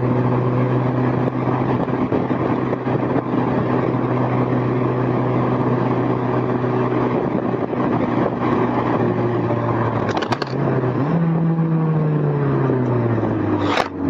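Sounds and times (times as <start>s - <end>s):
car engine cruising: 0.0s - 14.0s
road and wind noise: 0.0s - 14.0s
clicks: 10.0s - 10.6s, 13.6s - 14.0s.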